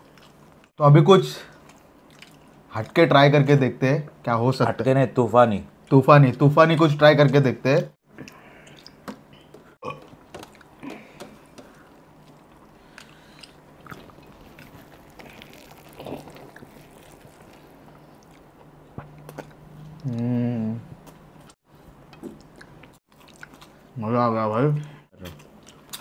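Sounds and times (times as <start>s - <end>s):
chewing and wet mouth smacks: 0.0s - 0.7s, 1.5s - 2.7s, 8.2s - 20.3s, 21.0s - 23.9s, 24.8s - 26.0s
faint steady hum: 0.0s - 26.0s.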